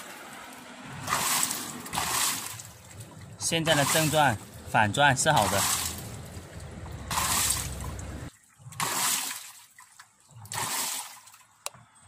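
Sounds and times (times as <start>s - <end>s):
washing machine water swishing: 0.0s - 11.6s
washing machine motor hum: 0.4s - 8.8s.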